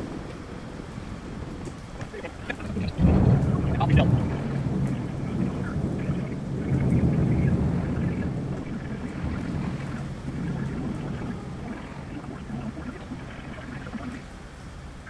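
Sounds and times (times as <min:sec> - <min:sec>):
rain: 0:00.0 - 0:15.0
thunder rumbling: 0:00.0 - 0:15.0.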